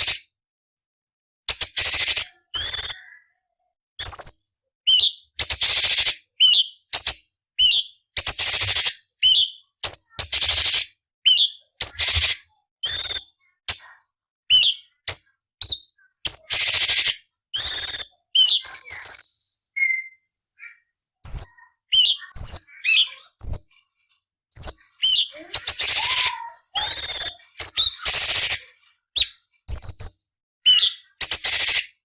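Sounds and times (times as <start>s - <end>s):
bird singing rasping calls and chirps: 1.5s - 3.4s, 4.0s - 32.0s.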